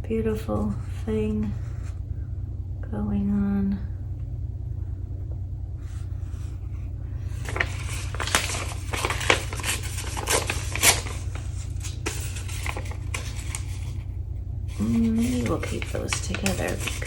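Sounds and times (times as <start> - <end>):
steady low hum: 0.0 - 17.0
paper rustling and scraping: 7.2 - 14.1, 14.7 - 17.0.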